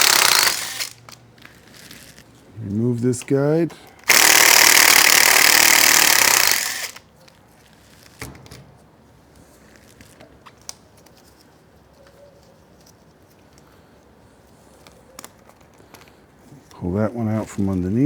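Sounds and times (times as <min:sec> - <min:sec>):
power driver spinning out screw: 0:00.0 - 0:01.0, 0:04.1 - 0:07.0.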